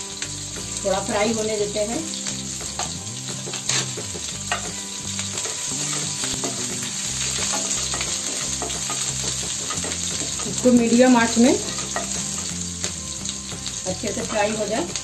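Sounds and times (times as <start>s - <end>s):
food sizzling in hot oil: 0.0s - 15.0s
spatula clicking against pan: 11.7s - 13.0s.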